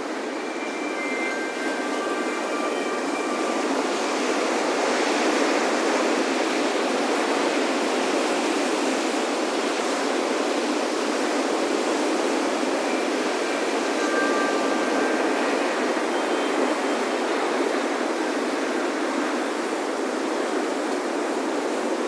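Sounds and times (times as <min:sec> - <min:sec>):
wind chimes ringing: 0:00.0 - 0:06.6, 0:11.7 - 0:19.2
ocean surf on a beach: 0:00.0 - 0:22.0.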